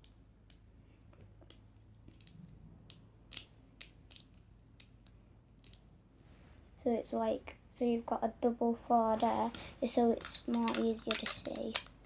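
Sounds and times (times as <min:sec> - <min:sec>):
plastic bricks clicking: 0:03.3 - 0:05.8, 0:10.1 - 0:12.0.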